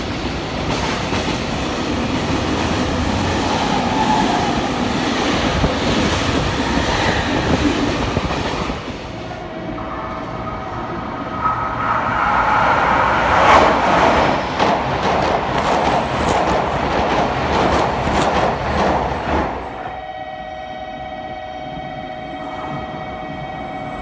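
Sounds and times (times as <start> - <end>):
train passing at speed: 0.0 - 24.0
wheels clicking over rail joints: 13.5 - 19.8.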